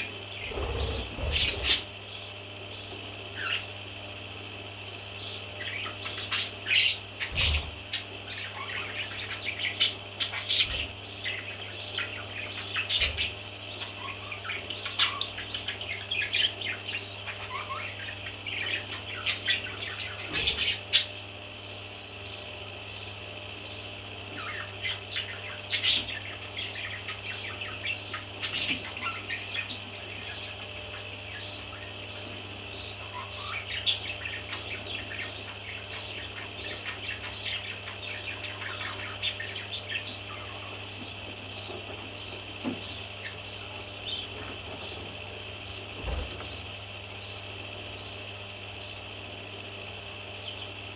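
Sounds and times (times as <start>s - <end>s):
baby parrots chirping: 0.0s - 2.0s, 5.6s - 21.2s, 23.7s - 32.1s, 32.7s - 40.8s
steady low hum: 0.0s - 50.9s.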